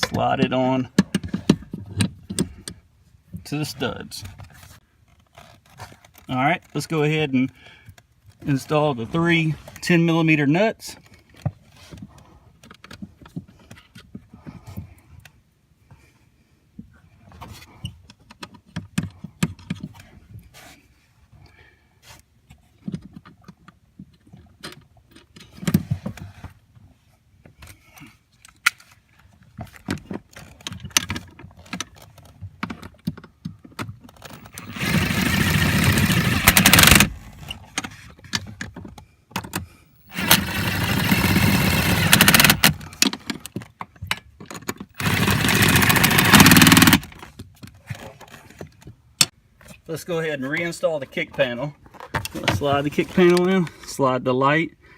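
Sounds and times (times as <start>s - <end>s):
ratchet tightening nuts: 34.3s - 37.2s, 40.0s - 42.9s, 44.9s - 47.2s.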